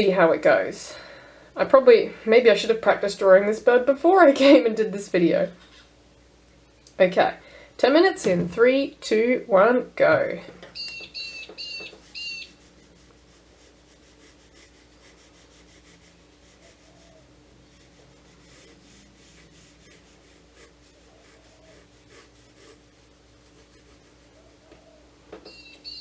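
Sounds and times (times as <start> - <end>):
faint steady hum: 0.0 - 26.0
pencil sketching on paper: 12.0 - 24.6.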